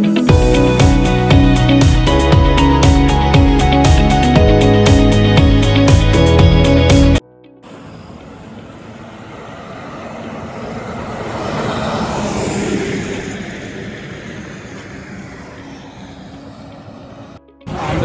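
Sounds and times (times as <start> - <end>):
road vehicle passing by: 7.6 - 18.0.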